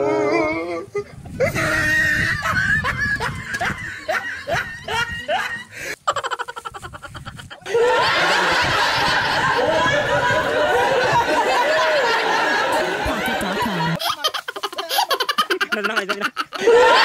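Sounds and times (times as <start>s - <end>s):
person giggling: 1.4s - 7.9s, 13.0s - 17.0s
crowd laughing: 1.6s - 17.0s.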